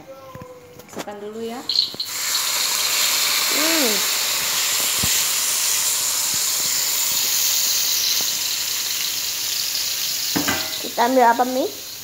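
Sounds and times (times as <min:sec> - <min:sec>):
paste sizzling in hot oil: 0:01.6 - 0:12.0.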